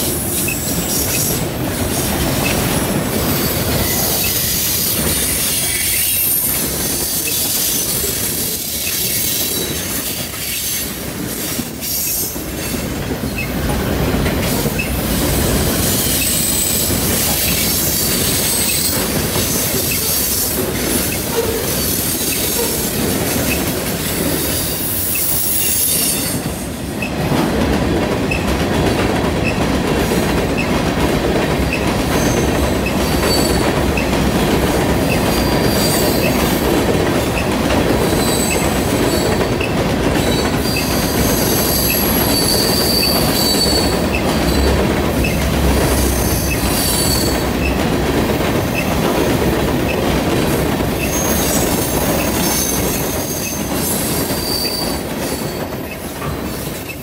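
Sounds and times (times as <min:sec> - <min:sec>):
train wheels rolling on rails: 0:00.0 - 0:57.0.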